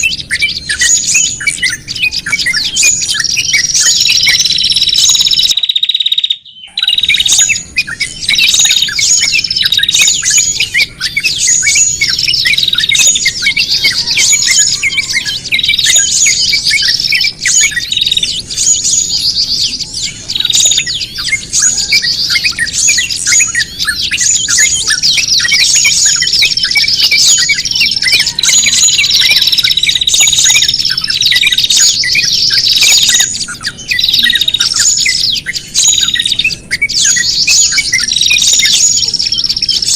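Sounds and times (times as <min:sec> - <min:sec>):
songbirds chirping and squawking: 0:00.0 - 0:39.9.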